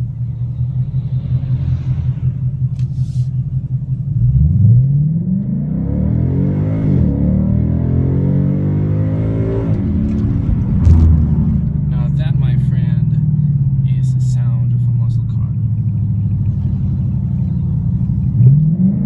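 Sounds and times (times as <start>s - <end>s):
car engine rumbling and revving: 0.0s - 19.0s.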